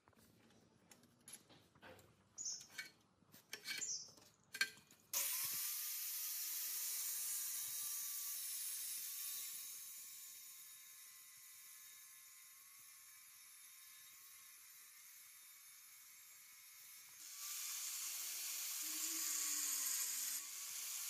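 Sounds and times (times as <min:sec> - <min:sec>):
metal tools clicking and knocking: 0:00.9 - 0:05.0
short squeaks: 0:02.4 - 0:02.9, 0:03.6 - 0:04.2.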